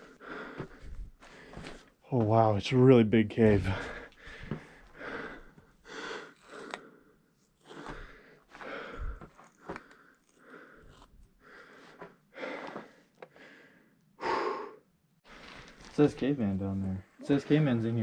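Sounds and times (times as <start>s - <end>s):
person breathing hard: 0.0s - 2.0s, 3.7s - 15.6s.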